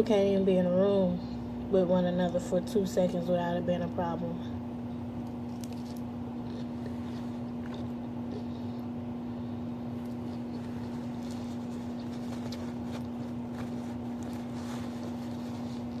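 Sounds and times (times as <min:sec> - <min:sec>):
steady low hum: 0:00.0 - 0:16.0
person chewing salad: 0:05.2 - 0:16.0.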